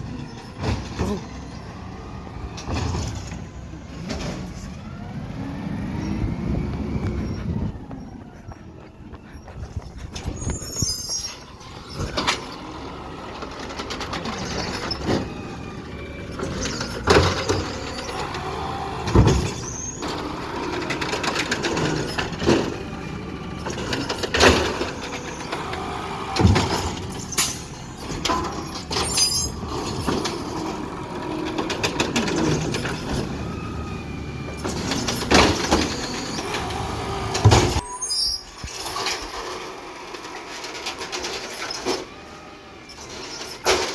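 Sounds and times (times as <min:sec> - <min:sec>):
truck engine running: 0:00.0 - 0:43.9
squeaks: 0:06.9 - 0:12.8, 0:13.5 - 0:15.5, 0:16.2 - 0:22.6, 0:23.6 - 0:30.7, 0:34.6 - 0:39.4, 0:42.8 - 0:43.9.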